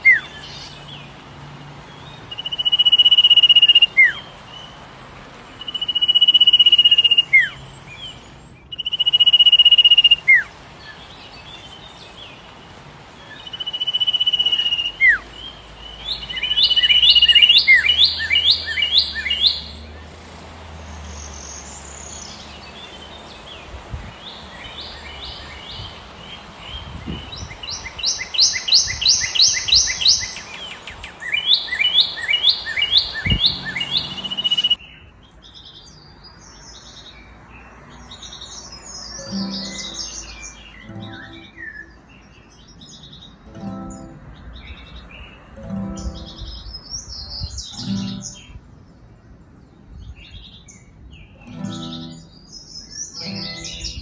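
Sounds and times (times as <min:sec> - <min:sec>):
bird whistle with downward slur: 0:05.6 - 0:07.6, 0:08.7 - 0:10.5, 0:13.4 - 0:15.4, 0:16.0 - 0:19.8, 0:27.2 - 0:34.8
bird rapid repeated notes: 0:39.2 - 0:42.1, 0:45.6 - 0:46.6, 0:47.7 - 0:48.6, 0:51.5 - 0:52.3, 0:53.2 - 0:54.0.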